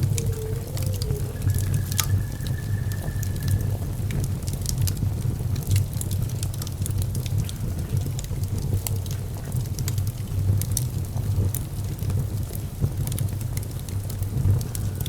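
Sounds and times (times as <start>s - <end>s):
wood fire crackling and popping: 0.0s - 3.6s
low rumble of flames: 0.0s - 15.0s.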